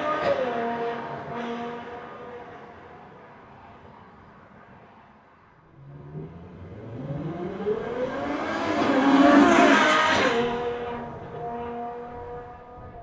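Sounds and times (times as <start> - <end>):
sports car engine accelerating: 5.8 - 12.3.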